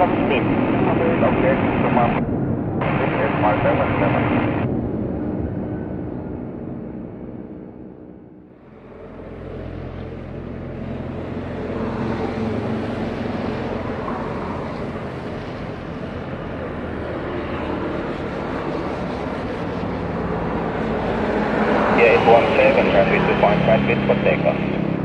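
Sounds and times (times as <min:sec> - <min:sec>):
jet engine rumble on approach: 0:00.0 - 0:25.0.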